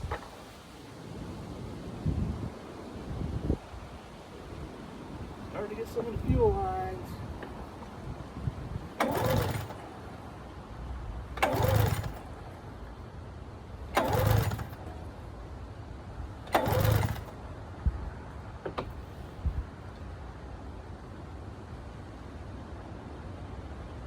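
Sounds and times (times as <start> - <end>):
recoil starter pull with engine whir: 0.0 - 0.6, 5.6 - 17.6, 18.3 - 20.1.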